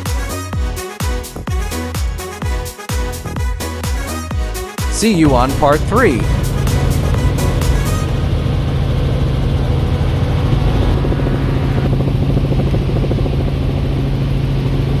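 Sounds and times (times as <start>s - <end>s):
engine pulsing hum: 5.4s - 15.0s.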